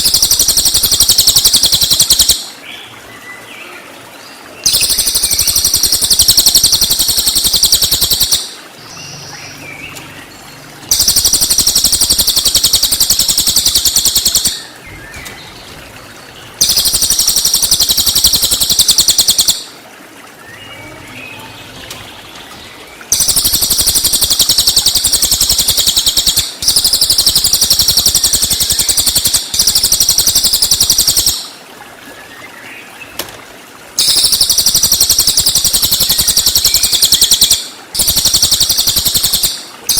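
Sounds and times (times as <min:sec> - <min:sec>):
bird singing high fast trills: 0:00.0 - 0:02.5, 0:04.6 - 0:10.3, 0:10.9 - 0:15.4, 0:16.6 - 0:19.8, 0:23.1 - 0:31.5, 0:34.0 - 0:39.9.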